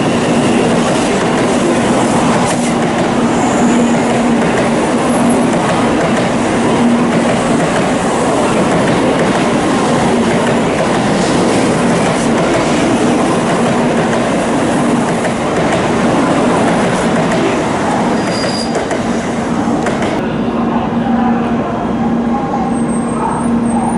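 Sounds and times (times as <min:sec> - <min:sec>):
train wheels rumbling: 0:00.0 - 0:20.4.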